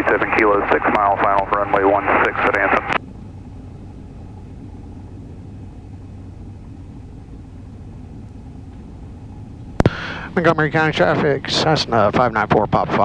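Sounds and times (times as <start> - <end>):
airplane engine hum in cockpit: 0.0 - 13.0.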